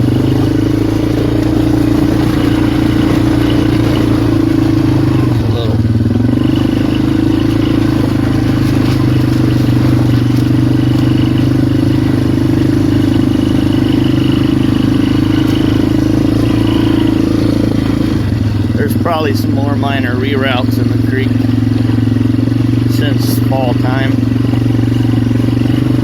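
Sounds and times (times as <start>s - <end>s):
quad bike engine running: 0.0s - 26.0s.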